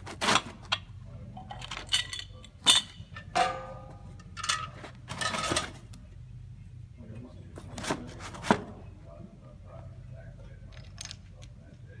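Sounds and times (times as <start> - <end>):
metal parts clinking: 1.4 - 5.8.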